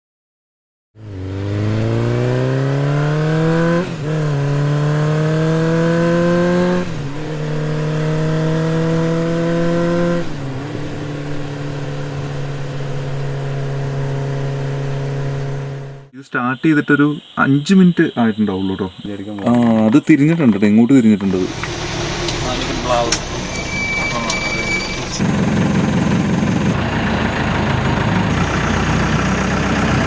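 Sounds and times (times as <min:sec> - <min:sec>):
car engine accelerating: 0:01.0 - 0:30.0.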